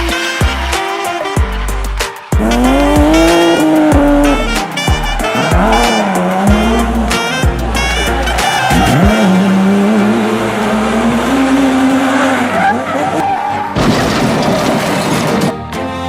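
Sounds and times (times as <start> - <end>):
tyres squealing and skidding: 0.0 - 15.6
background music: 0.0 - 16.0
engine at high revs: 2.4 - 13.2.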